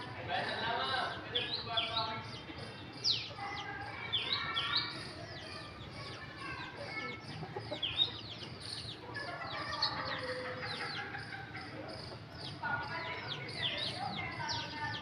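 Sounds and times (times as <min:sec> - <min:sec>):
chicks peeping: 0:00.7 - 0:15.0
chickens clucking: 0:01.9 - 0:15.0.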